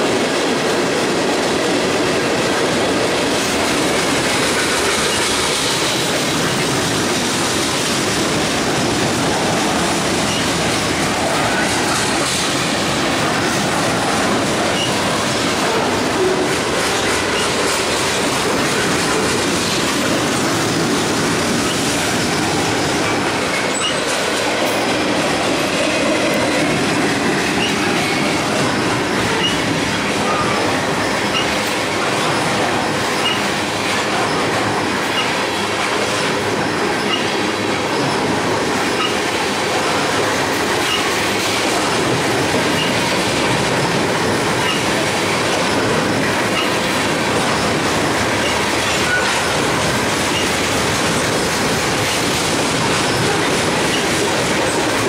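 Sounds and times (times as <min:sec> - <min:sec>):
freight cars rumbling and clattering: 0:00.0 - 0:55.0
high wheel squeals: 0:29.3 - 0:31.6, 0:33.2 - 0:33.5.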